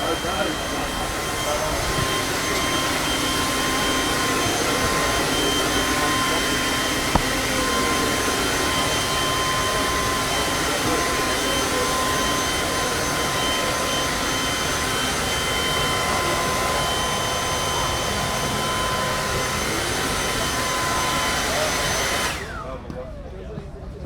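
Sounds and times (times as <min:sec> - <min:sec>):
mechanical rushing with high whine: 0:00.0 - 0:19.1.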